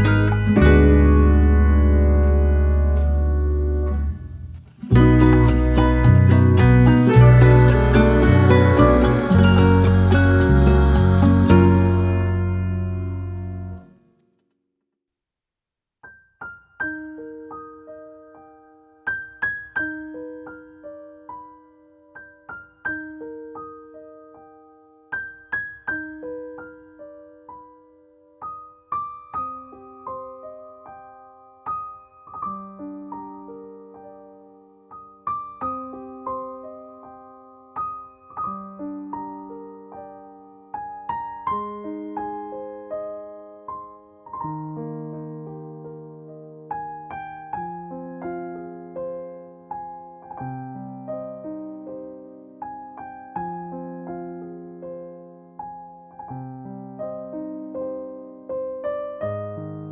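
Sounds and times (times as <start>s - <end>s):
gentle piano melody: 0.0s - 14.0s, 16.0s - 59.9s.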